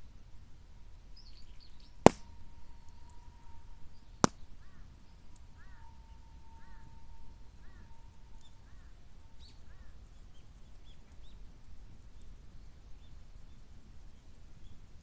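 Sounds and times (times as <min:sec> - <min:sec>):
bird calling: 0:05.5 - 0:10.0.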